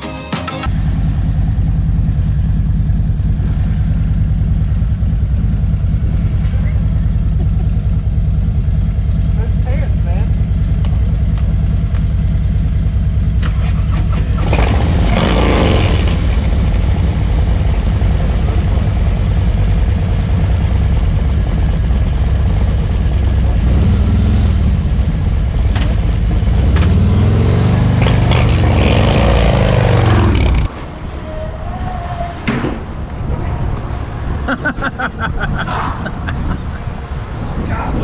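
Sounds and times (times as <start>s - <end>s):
motorcycle engine revving: 13.3s - 18.9s, 23.6s - 30.8s.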